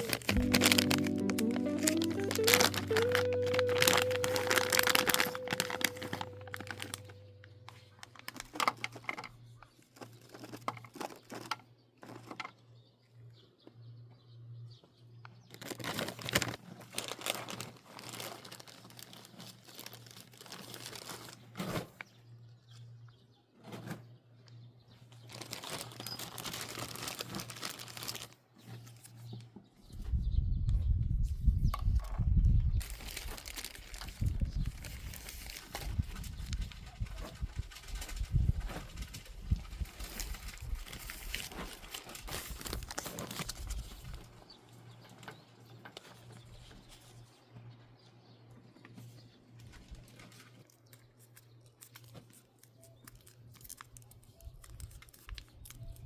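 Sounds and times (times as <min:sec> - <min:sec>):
rustling and crinkling: 0:00.0 - 0:12.7, 0:15.3 - 0:23.0, 0:23.6 - 0:30.0, 0:32.8 - 0:56.0.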